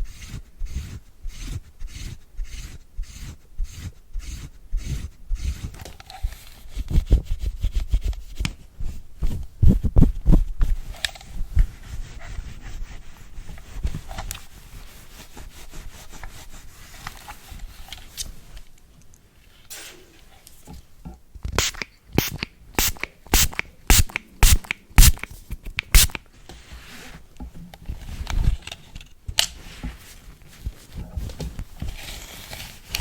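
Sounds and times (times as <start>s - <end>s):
brush rubbing and scratching: 0.0s - 18.2s, 21.6s - 27.2s.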